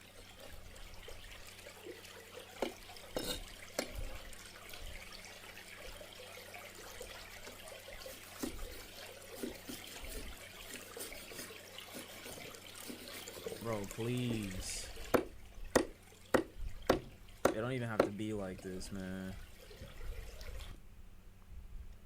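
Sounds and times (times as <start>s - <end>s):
water trickling: 0.0s - 20.8s
knife chopping on cutting board: 15.1s - 18.2s.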